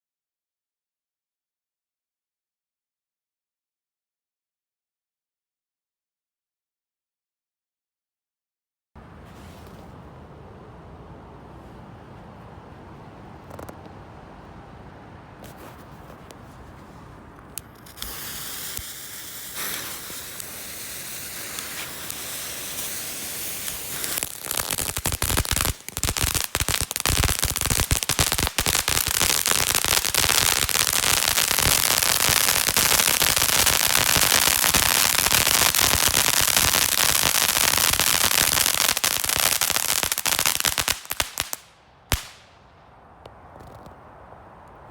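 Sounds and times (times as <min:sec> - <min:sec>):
firework hissing and crackling: 0:15.5 - 0:42.5.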